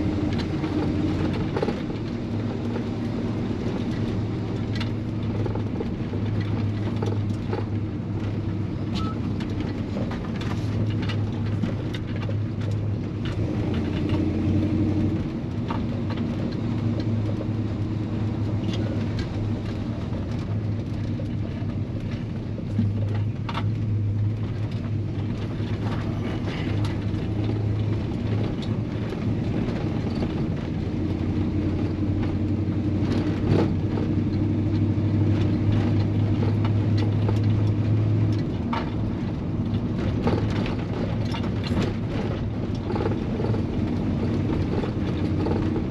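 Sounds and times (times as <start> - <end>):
truck engine droning: 0.0 - 45.9.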